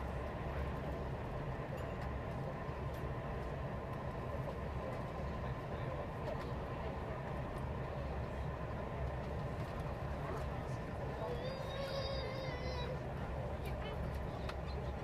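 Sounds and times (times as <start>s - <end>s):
train rumble and hiss inside coach: 0.0s - 15.0s.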